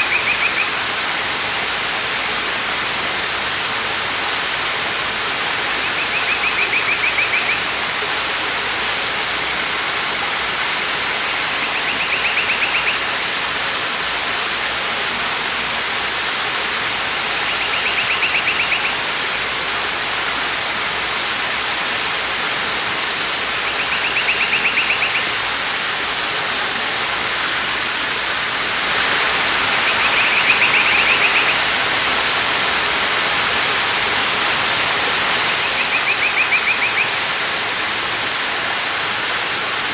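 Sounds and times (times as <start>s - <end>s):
waterfall rushing water: 0.0s - 39.9s
bird's rapid high trill: 23.7s - 25.3s.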